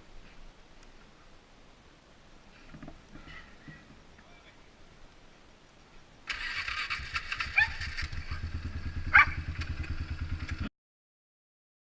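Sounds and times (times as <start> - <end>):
atv engine starting and idling: 6.3 - 10.7.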